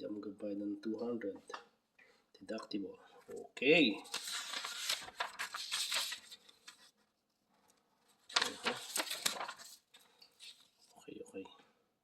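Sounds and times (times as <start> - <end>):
rustling and clicking handling: 8.3 - 10.7.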